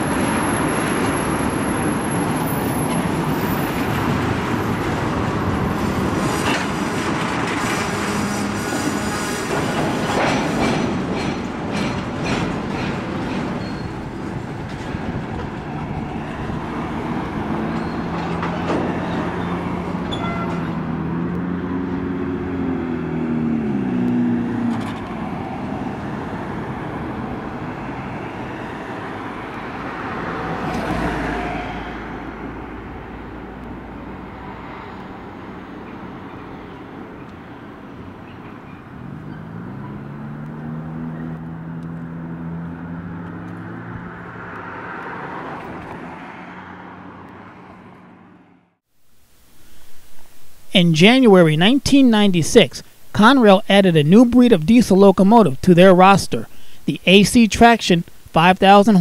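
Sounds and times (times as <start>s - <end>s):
freight train cars rolling: 0.0s - 21.3s
engine hum: 0.0s - 50.7s
wheels clicking over rail joints: 2.2s - 21.4s.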